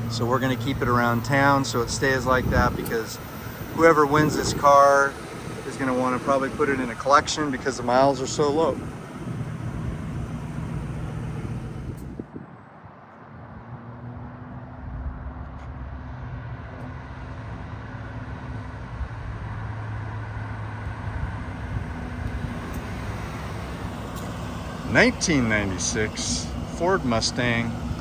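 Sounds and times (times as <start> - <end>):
car engine idling: 0.0 - 12.4, 21.1 - 28.0.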